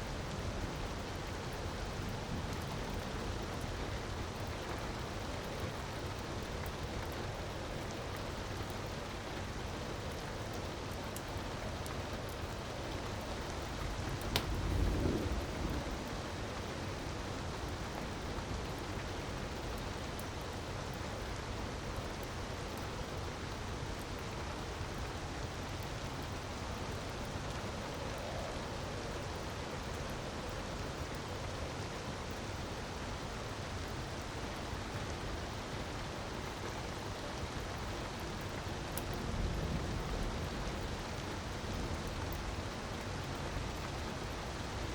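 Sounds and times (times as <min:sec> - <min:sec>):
wood fire crackling: 0:09.1 - 0:15.9
sharp crack: 0:14.3 - 0:14.6.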